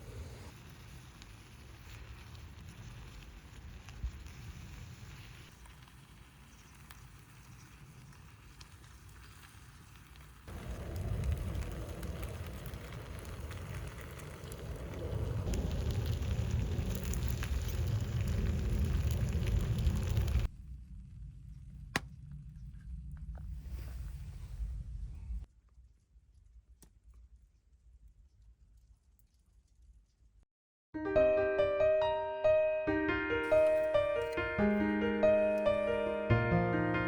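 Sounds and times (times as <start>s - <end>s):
noodles sizzling on iron griddle: 0.3s - 11.6s.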